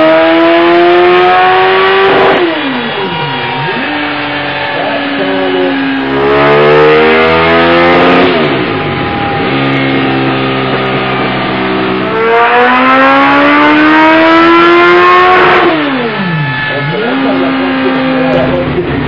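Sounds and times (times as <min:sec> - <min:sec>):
motorcycle engine revving on dyno: 0:00.0 - 0:19.0.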